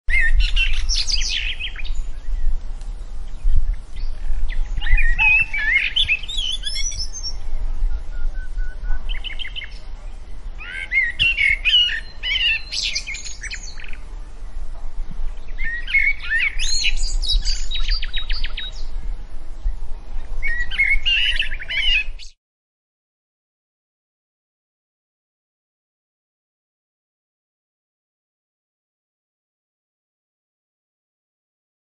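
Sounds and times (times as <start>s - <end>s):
birds chirping and warbling: 0.1s - 22.4s
steady low rumble: 0.4s - 11.0s, 13.0s - 21.7s.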